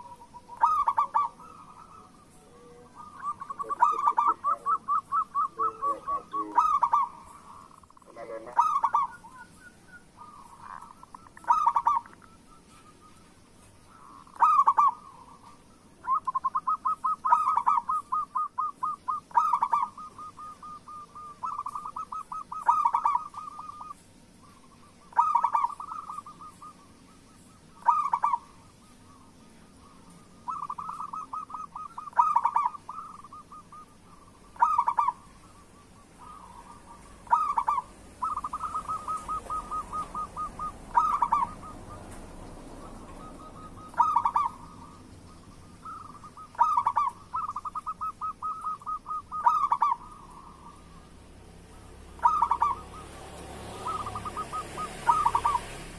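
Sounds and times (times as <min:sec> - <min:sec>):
doves cooing: 0:00.0 - 0:55.9.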